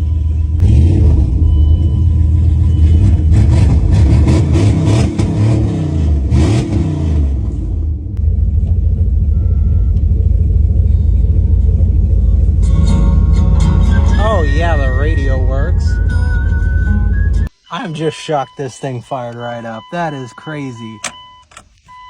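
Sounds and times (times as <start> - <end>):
truck engine revving and idling: 0.0 - 17.5.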